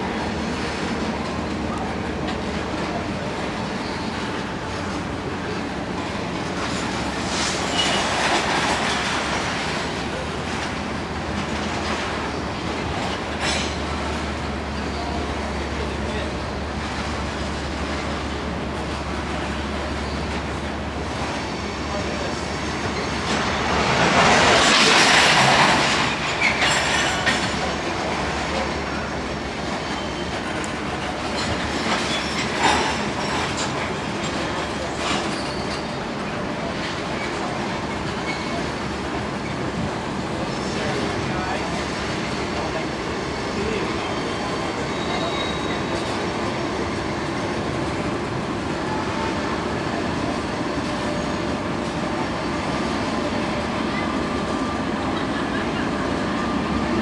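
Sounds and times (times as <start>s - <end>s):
diesel locomotive passing: 0.0s - 57.0s
train wheels clattering over rail joints: 0.2s - 57.0s
wheel squeals: 3.6s - 4.4s, 6.6s - 8.4s, 19.4s - 23.6s, 24.6s - 27.8s, 28.6s - 38.8s, 42.3s - 47.6s.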